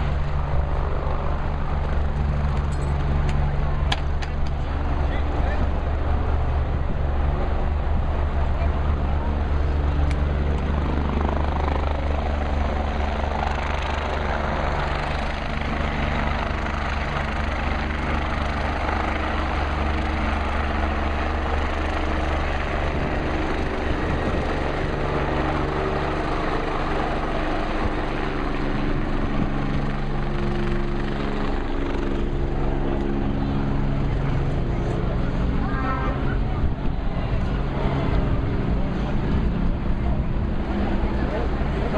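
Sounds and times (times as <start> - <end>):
helicopter running: 0.0 - 41.9.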